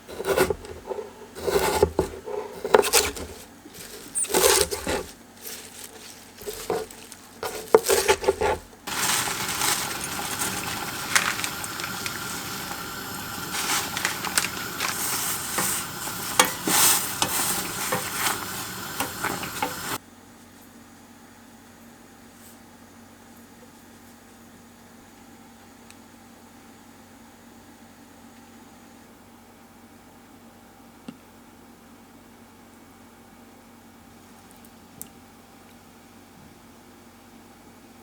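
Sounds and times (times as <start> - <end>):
utensils and dishes clattering: 2.6 - 20.0
sizzling hiss with crackles: 5.4 - 20.0.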